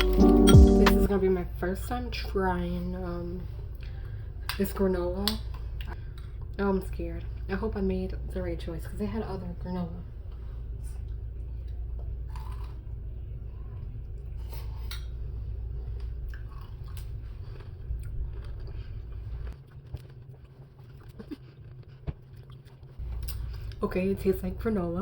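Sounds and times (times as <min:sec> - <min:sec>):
crunchy chewing: 0:12.3 - 0:12.9, 0:15.9 - 0:23.8.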